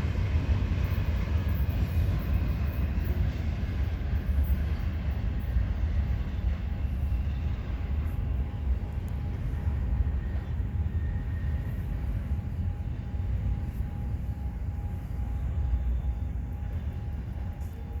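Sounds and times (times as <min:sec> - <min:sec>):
freight train cars rolling: 0:00.0 - 0:18.0.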